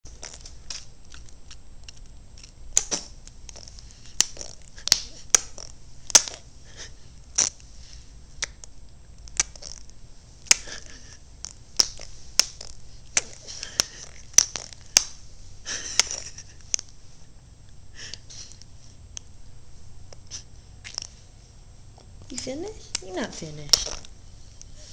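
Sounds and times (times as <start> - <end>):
baby smacking mouth: 8.4 - 8.7, 9.3 - 15.1, 20.1 - 21.2, 23.7 - 24.1.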